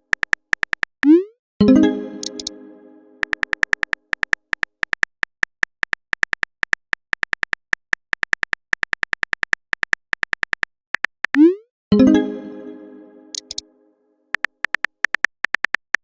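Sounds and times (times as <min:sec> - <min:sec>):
phone keyboard typing clicks: 0:00.0 - 0:01.2, 0:02.2 - 0:02.5, 0:03.2 - 0:11.4, 0:13.3 - 0:13.6, 0:14.3 - 0:16.0
chiming notification tone: 0:01.6 - 0:03.3, 0:11.4 - 0:13.8.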